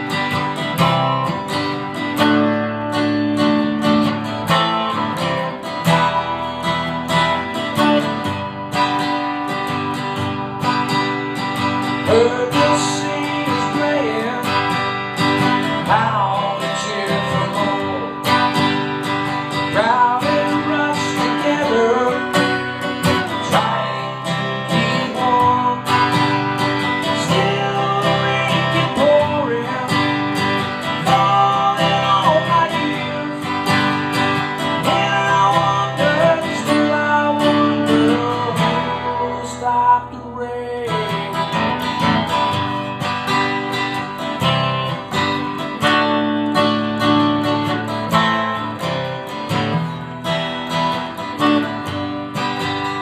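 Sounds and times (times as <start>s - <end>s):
acoustic guitar strumming and picking: 0.0s - 53.0s.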